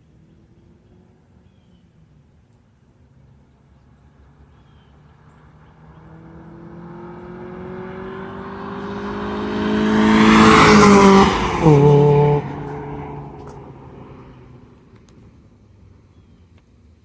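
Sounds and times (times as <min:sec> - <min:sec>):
car engine accelerating past: 0:04.1 - 0:14.9.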